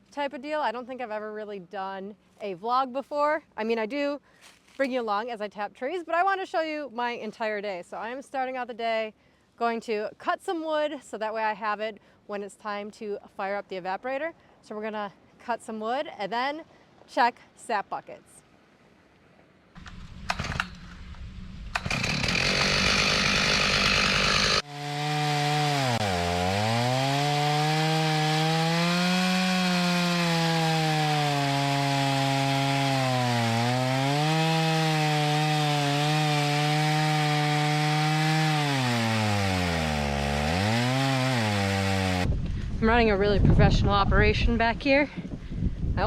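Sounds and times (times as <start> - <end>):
rough noisy engine running: 19.8 - 24.6
chainsaw cutting wood: 19.8 - 42.3.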